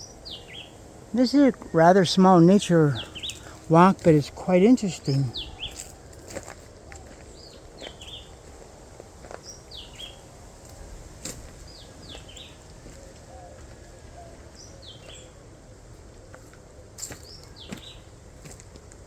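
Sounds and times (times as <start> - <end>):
bird calling: 0.0 - 6.2.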